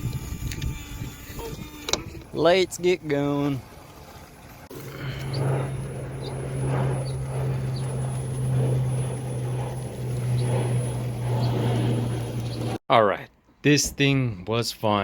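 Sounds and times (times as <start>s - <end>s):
small electric motor droning: 0.0s - 2.3s, 4.7s - 12.8s.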